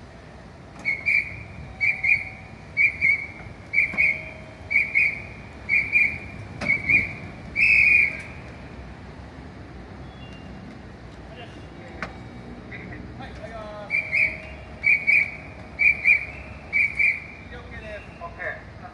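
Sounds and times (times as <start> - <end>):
hand whistle blowing: 0.8 - 8.3, 13.8 - 17.5.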